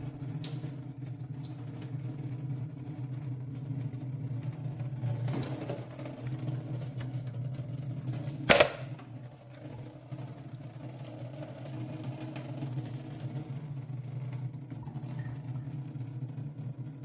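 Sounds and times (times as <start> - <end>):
sharp knock: 8.5 - 8.9.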